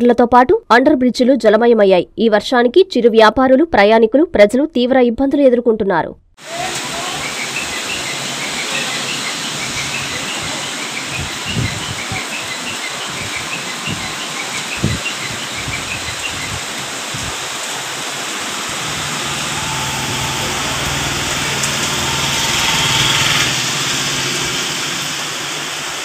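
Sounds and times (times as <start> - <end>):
heavy rain hissing: 6.4 - 26.0.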